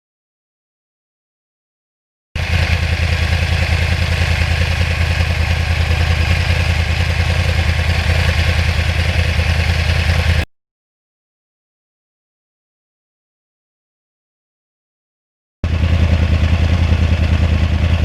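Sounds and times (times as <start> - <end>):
motorcycle engine running: 2.4 - 10.5, 15.6 - 18.0.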